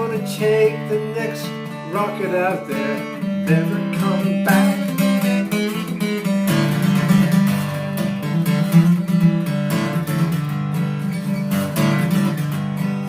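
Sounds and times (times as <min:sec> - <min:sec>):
person singing: 0:00.0 - 0:05.8
acoustic guitar strumming: 0:00.0 - 0:13.0.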